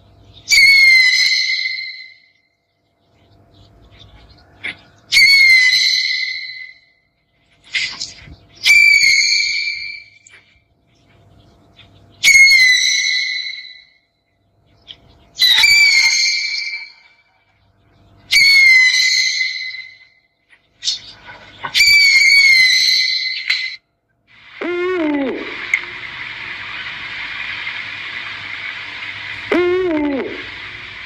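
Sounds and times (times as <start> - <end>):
owl screeching: 0.5 - 2.4, 4.4 - 6.9, 7.7 - 10.4, 12.2 - 14.0, 15.4 - 17.4, 18.3 - 20.2, 20.8 - 23.8, 29.3 - 31.0.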